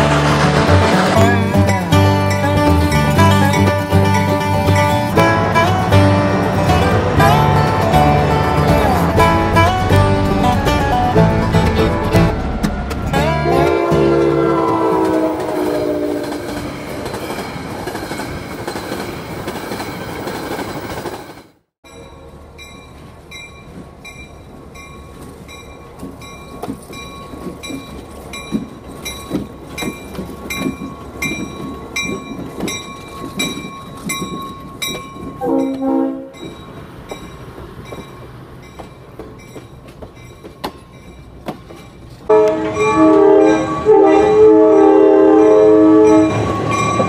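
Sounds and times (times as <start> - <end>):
train rumbling past: 0.0 - 47.0
train horn chord: 5.1 - 12.5, 13.1 - 16.4, 35.4 - 36.5, 42.3 - 47.0
short model train horn: 35.4 - 36.4, 42.3 - 46.4.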